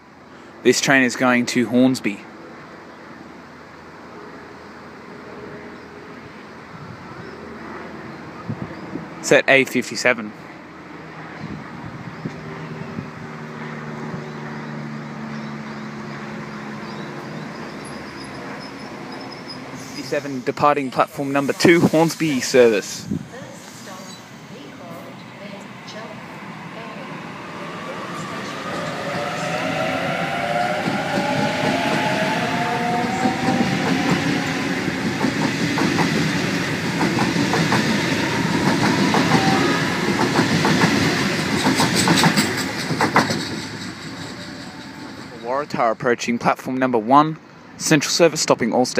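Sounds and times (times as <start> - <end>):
electric train low hum: 10.1 - 46.0.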